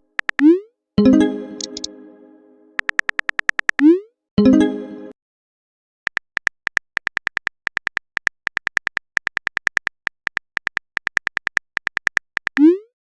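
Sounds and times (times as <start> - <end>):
synthetic keyboard typing ticks: 0.0 - 0.6, 1.6 - 1.9, 2.8 - 4.0, 6.1 - 12.9.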